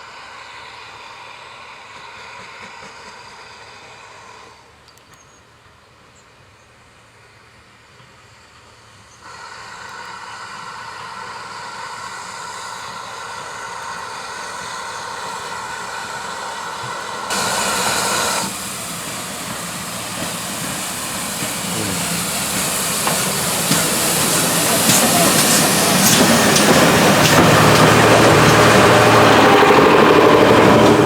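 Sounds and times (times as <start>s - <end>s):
steam train approaching: 0.0s - 31.0s
steam hiss burst: 9.3s - 28.1s.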